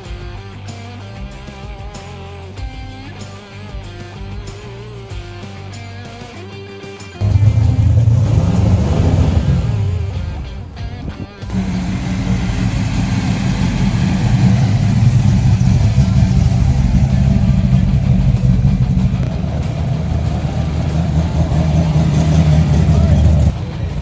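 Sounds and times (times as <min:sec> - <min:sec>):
car engine running: 0:07.2 - 0:24.0.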